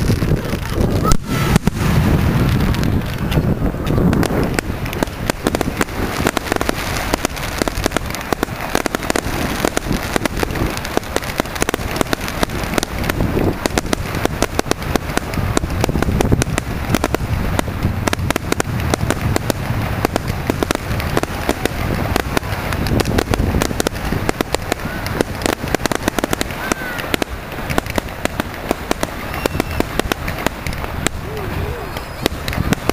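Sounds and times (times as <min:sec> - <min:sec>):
deep rumble: 0:00.0 - 0:11.0
fireworks bangs and crackling: 0:00.0 - 0:32.9.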